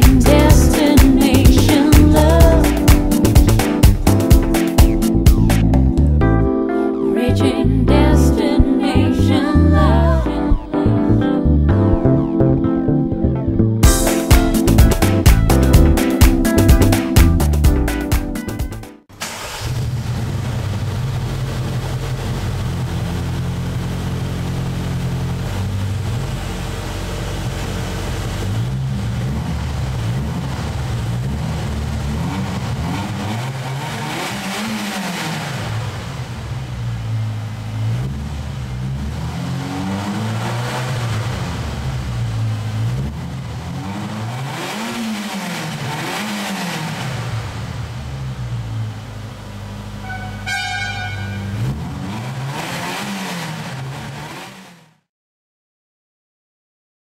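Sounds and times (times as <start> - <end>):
car engine idling and revving: 0.0 - 55.1
short high tone: 50.0 - 51.6.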